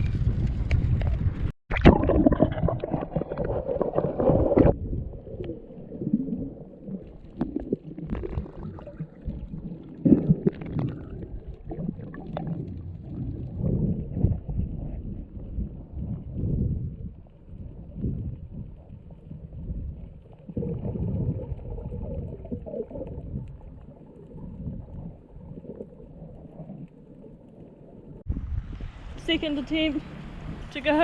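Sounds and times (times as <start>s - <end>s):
muffled underwater rumbling: 0.0s - 29.1s
small clicks and pops: 17.0s - 28.3s.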